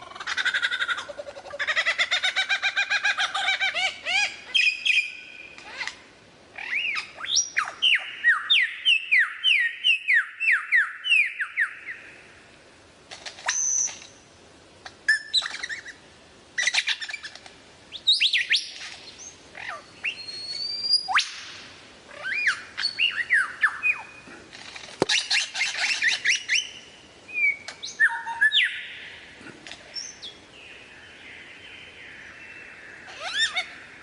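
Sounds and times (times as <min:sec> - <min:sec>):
lyrebird singing: 0:00.0 - 0:05.9, 0:06.6 - 0:12.0, 0:15.1 - 0:16.0, 0:16.6 - 0:21.5, 0:22.1 - 0:24.3, 0:25.0 - 0:34.0.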